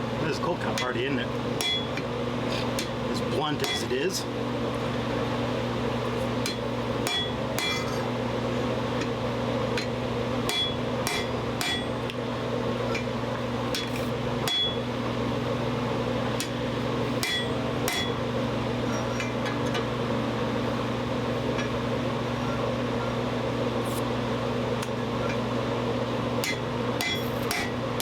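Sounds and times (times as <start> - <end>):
anvil ringing: 1.6 - 2.0, 3.6 - 4.0, 6.5 - 8.0, 10.5 - 12.0, 14.5 - 14.8, 17.2 - 18.2, 26.4 - 27.7
hammer striking steel on anvil: 1.6 - 2.0, 3.6 - 4.0, 6.4 - 8.0, 9.8 - 12.0, 13.7 - 14.8, 17.2 - 18.2, 26.4 - 27.8.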